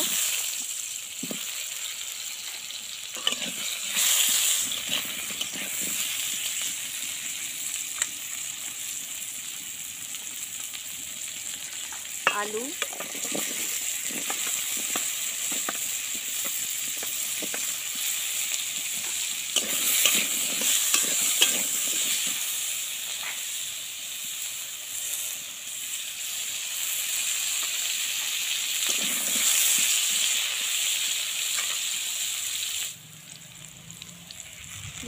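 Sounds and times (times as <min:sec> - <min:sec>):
vegetables sizzling in oil: 0:00.0 - 0:35.0
metal spatula clinking and scraping: 0:03.1 - 0:06.4, 0:19.0 - 0:22.3.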